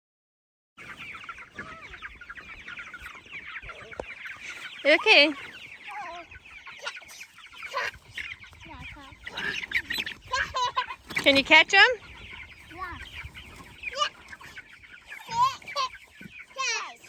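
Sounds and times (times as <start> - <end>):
chickens clucking and cheeping: 0.8 - 17.0.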